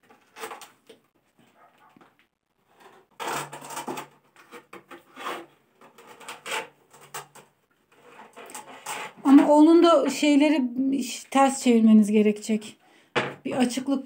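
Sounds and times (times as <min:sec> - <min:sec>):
ceramic tiles scraping and knocking: 0:02.0 - 0:10.3.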